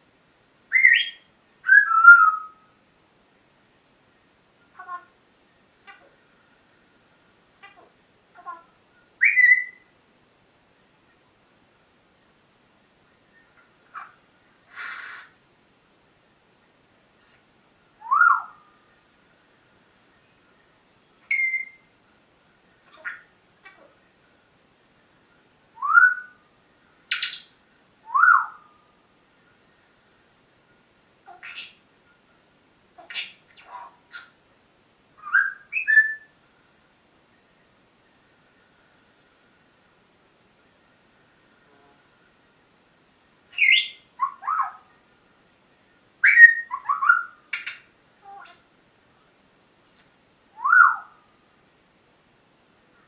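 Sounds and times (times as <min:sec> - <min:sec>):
parrot squawk: 0:31.3 - 0:31.8, 0:33.0 - 0:34.4, 0:43.5 - 0:44.8
parrot whistling and chattering: 0:43.5 - 0:44.8, 0:46.2 - 0:48.6.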